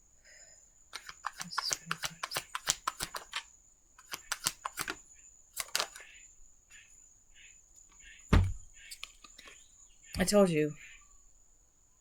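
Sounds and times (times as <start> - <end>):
cards snapping: 1.0 - 3.4, 4.0 - 5.0, 5.6 - 6.0
cards sliding: 1.0 - 5.0, 5.6 - 6.1, 8.8 - 9.6
dull thump: 8.3 - 8.8.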